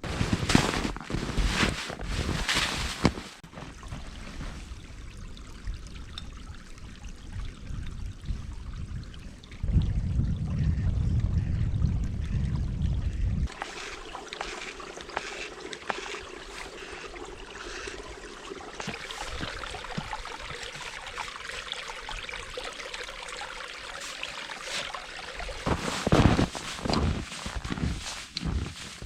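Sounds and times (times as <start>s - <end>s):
creek trickling: 0.0s - 29.0s.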